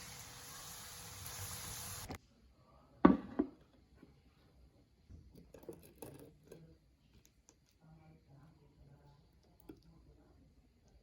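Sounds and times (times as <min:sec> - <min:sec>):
water running from tap: 0:00.0 - 0:02.2.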